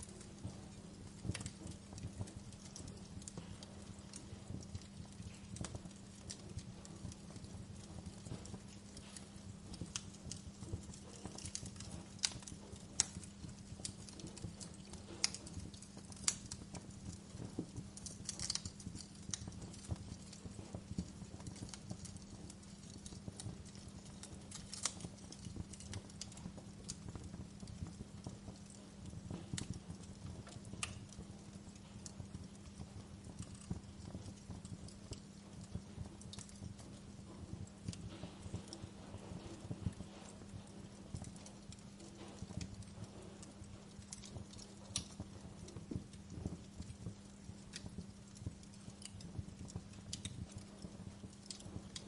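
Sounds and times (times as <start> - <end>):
fire crackling: 0.0 - 52.0.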